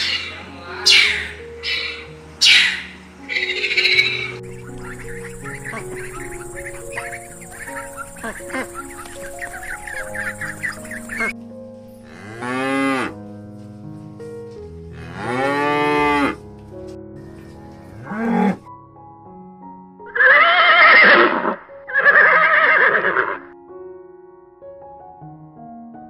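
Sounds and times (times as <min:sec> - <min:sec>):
water buffalo lowing: 0:00.0 - 0:11.3
soft background music: 0:00.0 - 0:26.0
horse whinnies: 0:20.1 - 0:23.5.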